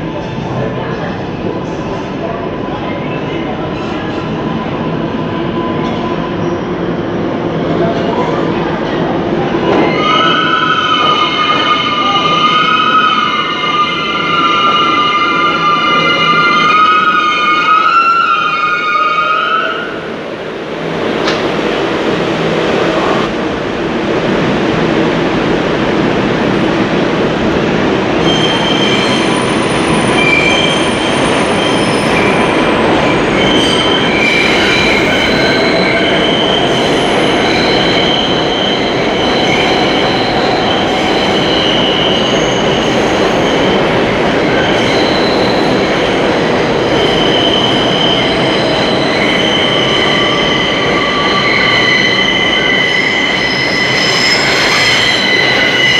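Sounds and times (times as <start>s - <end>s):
high-pitched wheel squeals: 47.0s - 55.9s.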